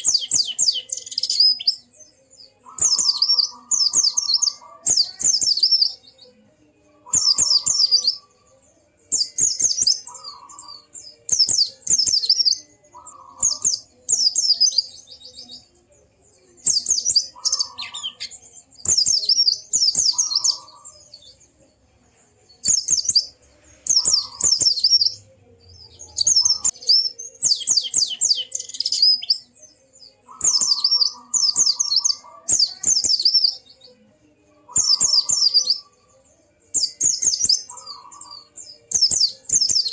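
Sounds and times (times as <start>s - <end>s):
bird twittering: 0.0s - 1.9s, 2.6s - 6.0s, 7.1s - 8.2s, 9.1s - 15.5s, 16.6s - 21.1s, 22.6s - 25.2s, 25.8s - 29.5s, 30.2s - 33.7s, 34.7s - 36.0s, 36.8s - 39.9s.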